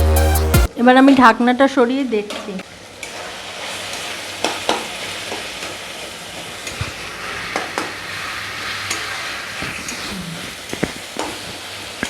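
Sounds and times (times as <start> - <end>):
meat and onions sizzling in oil: 2.7 - 12.0.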